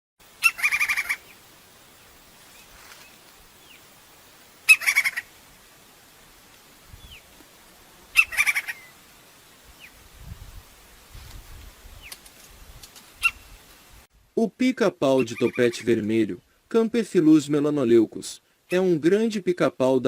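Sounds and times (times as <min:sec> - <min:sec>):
woodpecker calling: 0:00.4 - 0:01.4, 0:04.6 - 0:05.4, 0:08.1 - 0:09.0, 0:13.2 - 0:13.5, 0:15.2 - 0:16.0.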